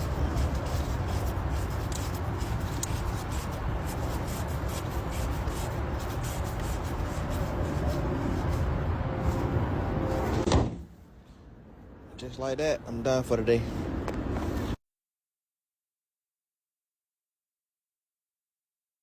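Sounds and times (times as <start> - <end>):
steady rumbling: 0.0 - 10.5.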